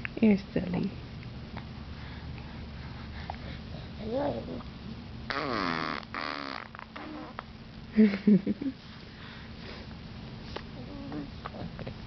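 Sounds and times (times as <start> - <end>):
baby cooing: 4.0 - 4.7, 5.3 - 7.4, 10.8 - 11.6
baby blowing raspberry: 5.3 - 7.4.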